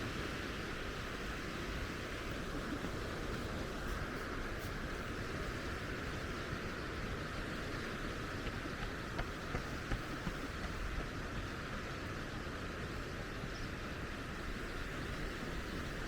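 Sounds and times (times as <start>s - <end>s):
sea and wind noise: 0.0s - 16.0s.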